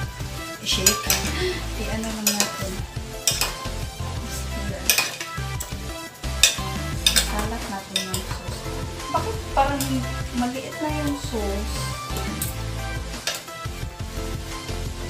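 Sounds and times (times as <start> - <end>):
chicken sizzling in sauce: 0.0 - 15.0
spoon scraping and clinking pan: 0.7 - 1.4, 2.0 - 8.6.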